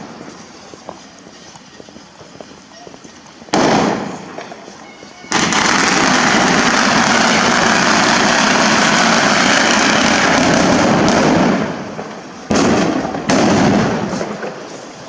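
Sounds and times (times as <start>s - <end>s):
firecrackers exploding: 0.0s - 2.6s, 3.3s - 15.0s
sharp loud bangs: 3.5s - 4.6s, 5.3s - 14.6s.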